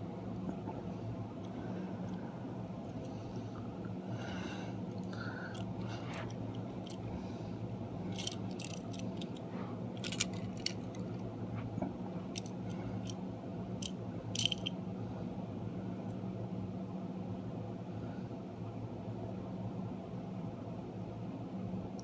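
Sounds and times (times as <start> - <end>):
low hum: 0.0 - 19.5
toy trains clicking and tapping: 8.1 - 9.4, 10.0 - 11.2, 12.3 - 13.2, 13.8 - 14.7.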